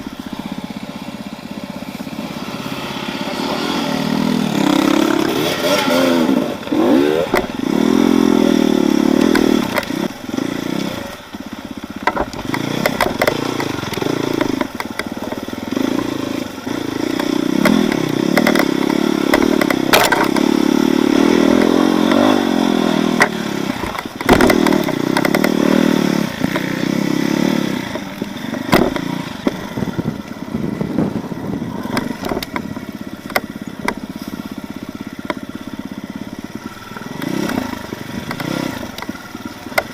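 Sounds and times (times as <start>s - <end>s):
motorcycle engine revving: 0.0s - 39.9s
sharp knocks and clatter: 12.0s - 16.1s, 17.0s - 22.4s, 23.0s - 26.7s, 27.9s - 30.1s, 31.9s - 34.0s.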